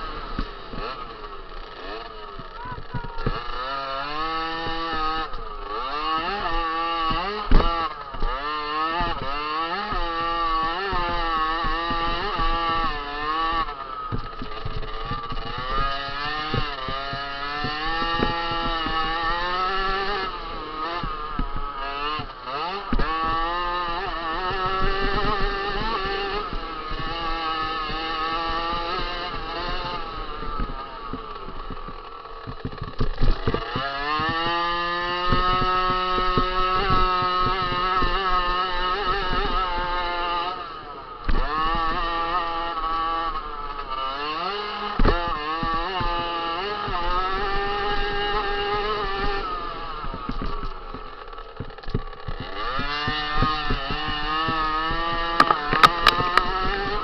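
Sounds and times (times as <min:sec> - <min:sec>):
motocross bike engine revving: 0:00.0 - 0:57.0
sharp knocks: 0:50.1 - 0:57.0.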